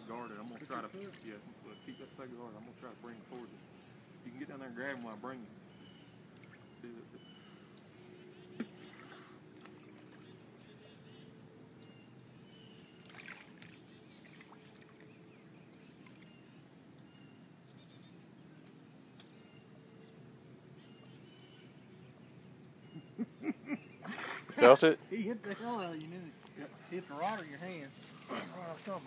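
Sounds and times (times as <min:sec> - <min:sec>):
bird chirping: 0:00.0 - 0:29.0
water sloshing around waders: 0:00.3 - 0:01.7, 0:08.6 - 0:11.0, 0:12.9 - 0:15.2.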